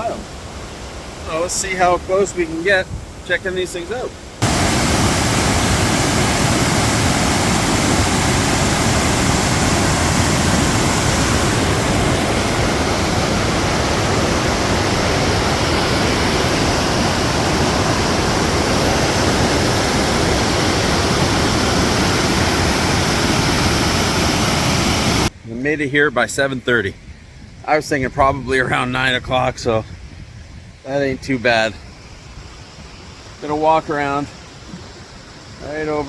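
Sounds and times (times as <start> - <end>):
waterfall rushing: 0.0 - 25.3.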